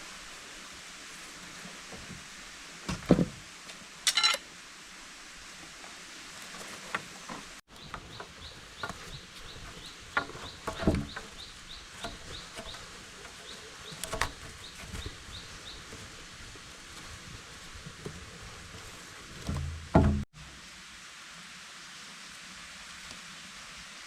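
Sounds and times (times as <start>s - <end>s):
forest background: 0.0s - 24.0s
sharp knocks: 19.5s - 20.3s.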